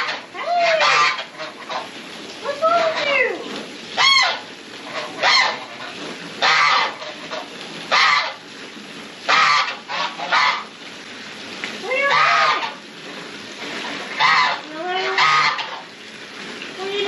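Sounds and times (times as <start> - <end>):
geese honking: 0.0 - 1.9, 4.0 - 8.4, 9.3 - 10.7, 12.0 - 12.8, 14.1 - 15.9.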